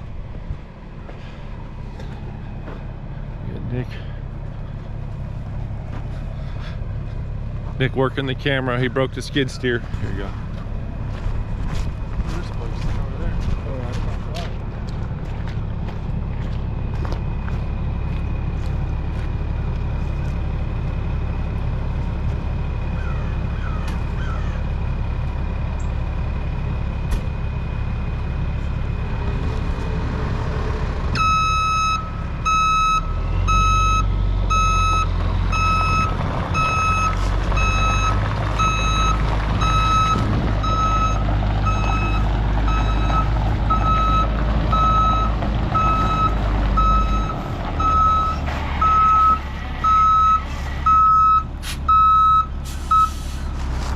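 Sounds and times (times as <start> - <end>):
heavy diesel machine idling: 0.0 - 53.9
reversing alarm beeping: 31.2 - 53.3.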